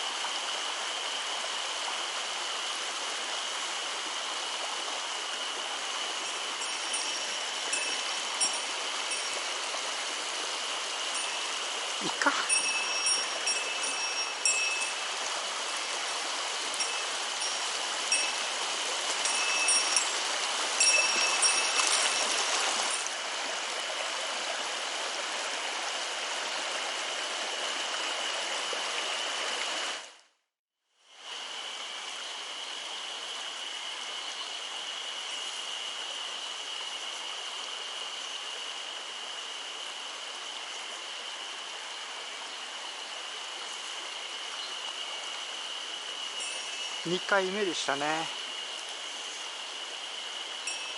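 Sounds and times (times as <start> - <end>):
stream water rushing: 0.0 - 30.2, 31.1 - 50.9
thin steady high tone: 5.3 - 23.1, 43.0 - 50.9.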